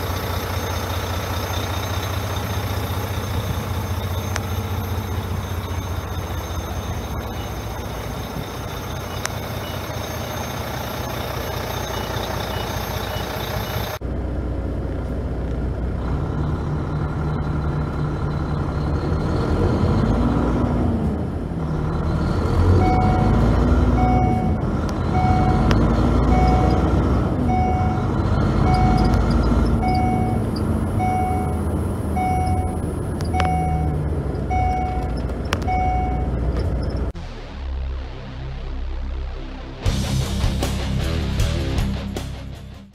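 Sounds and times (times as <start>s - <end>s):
reversing alarm beeping: 0.0s - 14.0s, 21.9s - 37.1s
truck diesel engine revving: 0.0s - 37.2s.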